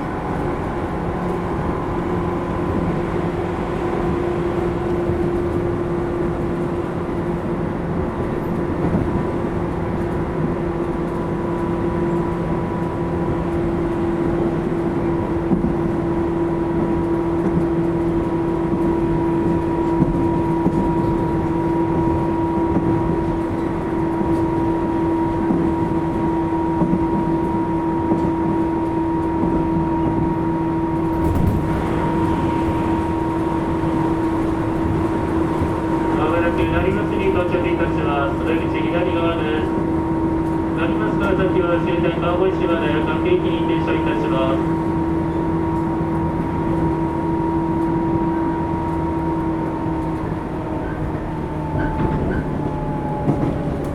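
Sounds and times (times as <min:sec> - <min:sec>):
train motor hum: 0:00.0 - 0:53.9
train wheels rumbling on track: 0:00.0 - 0:53.9.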